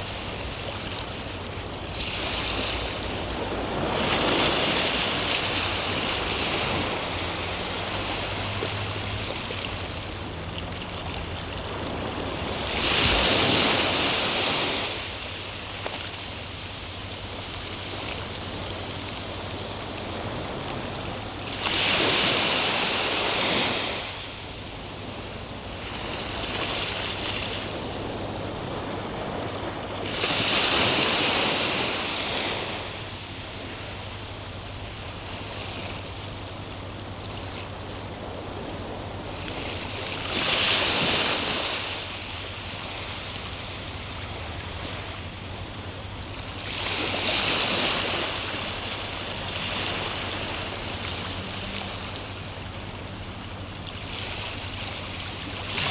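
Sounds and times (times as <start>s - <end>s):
ocean waves breaking: 0.0s - 55.9s.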